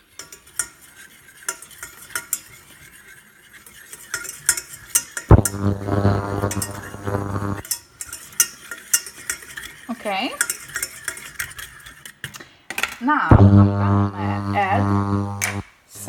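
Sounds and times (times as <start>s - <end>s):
light sizzle: 5.2s - 7.7s, 13.3s - 16.0s
steady low hum: 5.3s - 7.6s, 13.3s - 15.6s.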